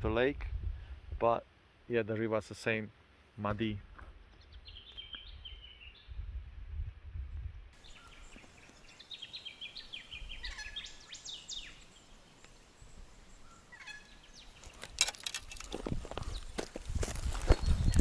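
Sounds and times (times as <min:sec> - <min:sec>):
wind rumble on microphone: 0:00.0 - 0:01.3, 0:03.6 - 0:07.8, 0:15.5 - 0:18.0
bird whistling call: 0:09.2 - 0:11.8
handling clicks and rustles: 0:14.6 - 0:18.0.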